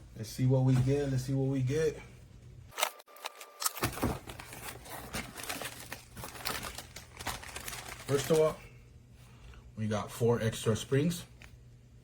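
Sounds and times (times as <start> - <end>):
plastic packaging crinkling: 3.2 - 8.6
cardboard box being opened: 3.8 - 8.4.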